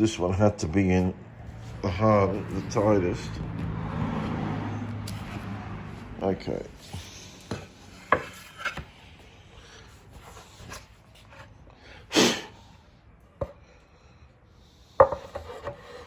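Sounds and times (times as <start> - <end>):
wood scraping: 1.0 - 9.2.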